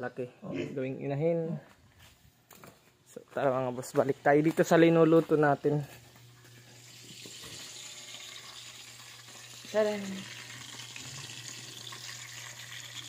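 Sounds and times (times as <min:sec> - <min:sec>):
meat sizzling in hot oil: 0:06.8 - 0:13.0.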